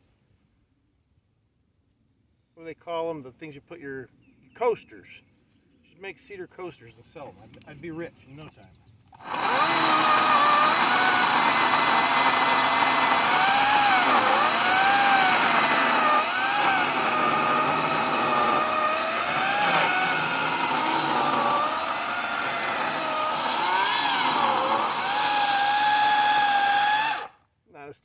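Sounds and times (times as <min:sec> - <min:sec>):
chainsaw cutting wood: 0:09.1 - 0:27.4.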